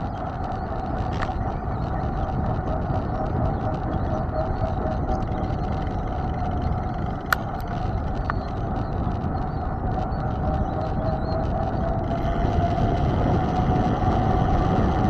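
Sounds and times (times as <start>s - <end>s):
faint steady hum: 0.0s - 15.0s
wind and tyre noise: 0.0s - 15.0s.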